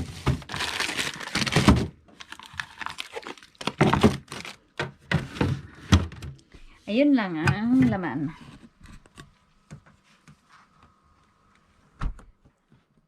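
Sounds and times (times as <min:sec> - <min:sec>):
plastic packages crinkling: 0:00.0 - 0:04.7
packages thunking in freezer: 0:00.0 - 0:06.4.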